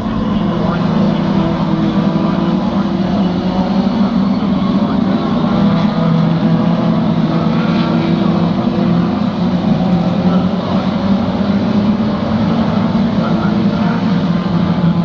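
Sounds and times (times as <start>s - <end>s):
racing car engines droning: 0.0s - 15.0s.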